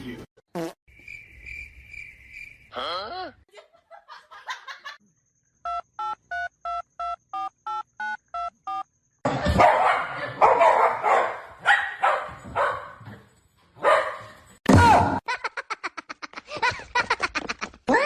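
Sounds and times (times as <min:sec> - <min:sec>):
dog barking: 0:09.4 - 0:13.2, 0:13.8 - 0:14.4.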